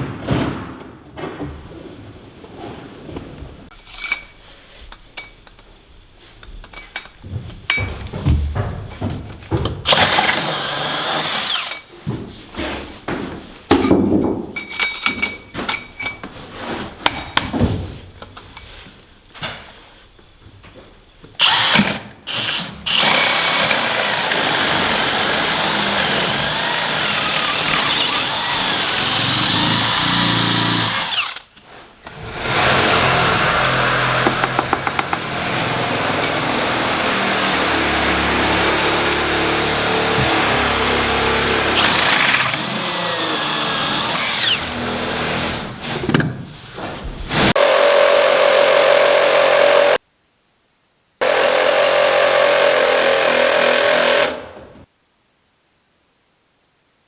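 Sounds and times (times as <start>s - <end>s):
power tool running: 9.9s - 11.8s, 21.4s - 31.5s, 32.1s - 45.8s, 51.2s - 54.6s.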